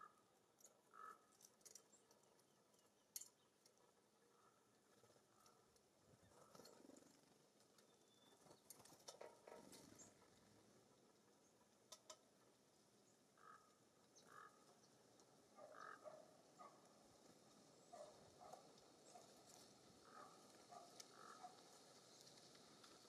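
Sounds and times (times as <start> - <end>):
faint bird calls: 0.0 - 2.1, 3.2 - 12.2, 13.0 - 16.8, 17.9 - 21.8.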